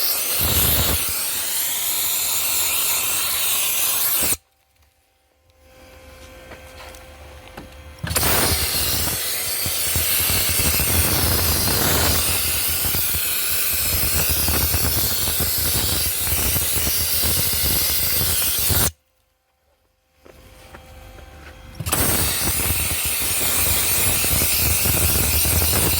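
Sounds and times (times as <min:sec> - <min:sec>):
dry ice blaster hissing: 0:00.0 - 0:04.4, 0:08.0 - 0:18.9, 0:21.8 - 0:25.9.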